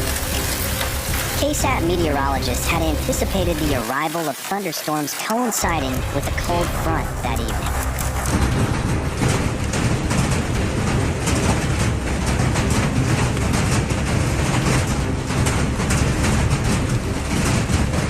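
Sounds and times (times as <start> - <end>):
hail clattering: 0.0 - 18.0
low rumble: 5.7 - 18.0.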